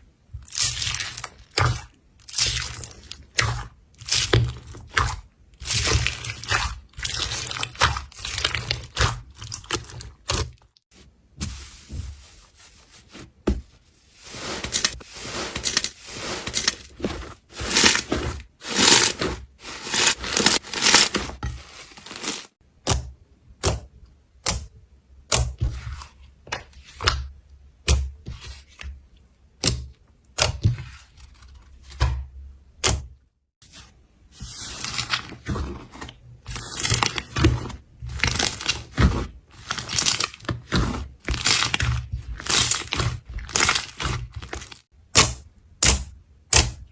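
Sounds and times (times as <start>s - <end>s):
slime crackling and squishing: 0.4s - 13.2s, 13.9s - 22.6s, 33.7s - 44.9s.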